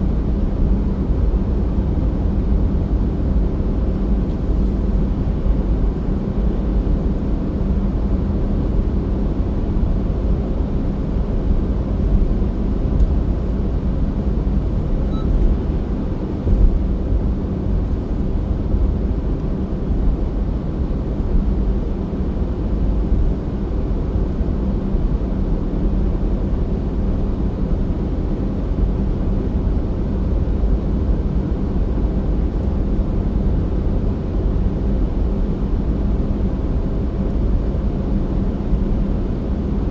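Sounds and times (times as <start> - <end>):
car driving tyre rumble: 2.7 - 25.2.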